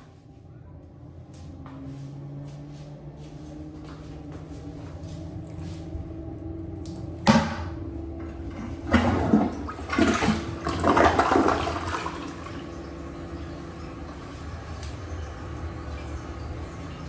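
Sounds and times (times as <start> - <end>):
toilet flushing: 7.3 - 17.0.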